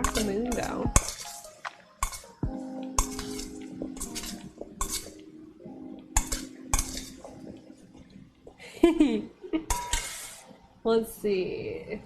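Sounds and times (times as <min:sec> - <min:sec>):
utensils clinking against dishes: 0:00.0 - 0:02.4, 0:03.0 - 0:05.2, 0:06.2 - 0:07.4, 0:09.7 - 0:10.4
background music: 0:00.0 - 0:12.0.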